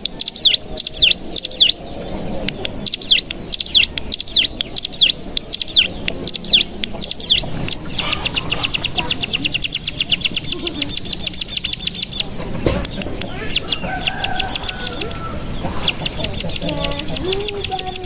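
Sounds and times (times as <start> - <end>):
bird whistling and trilling: 0.0 - 18.0.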